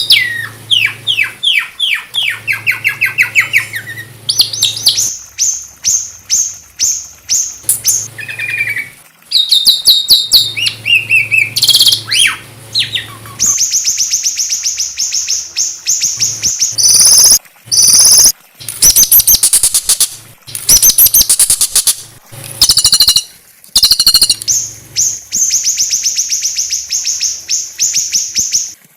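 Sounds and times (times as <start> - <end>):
songbird trilling and whistling: 0.0 - 22.0, 22.6 - 28.8.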